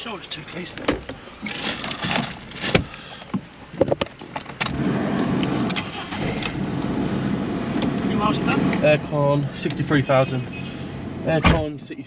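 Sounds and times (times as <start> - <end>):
car engine starting and idling: 4.1 - 12.0.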